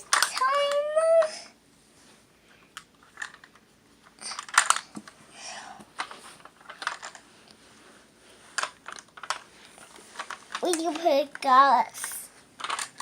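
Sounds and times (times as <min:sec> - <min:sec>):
plastic toy truck clicks and rattles: 0:03.1 - 0:03.6, 0:04.2 - 0:05.0, 0:06.0 - 0:07.2, 0:10.2 - 0:13.0.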